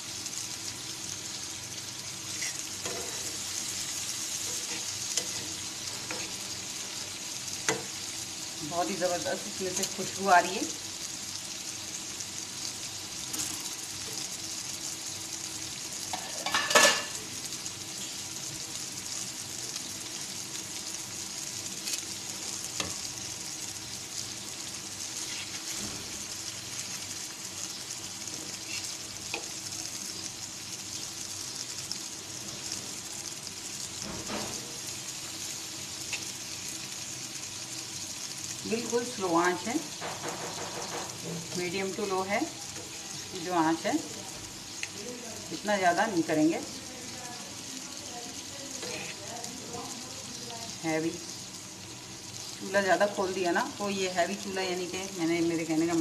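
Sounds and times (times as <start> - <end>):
chillies sizzling in oil: 0.0 - 56.0
spatula scraping and stirring: 2.2 - 6.9, 25.0 - 27.3, 28.3 - 29.6, 48.8 - 49.3
metal utensil knocking on pan: 16.4 - 17.1, 40.0 - 41.5.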